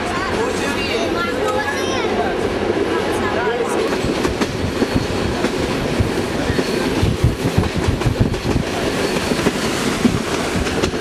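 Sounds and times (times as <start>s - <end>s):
train carriage rumbling: 0.0s - 11.0s
wheels knocking on track: 3.9s - 11.0s.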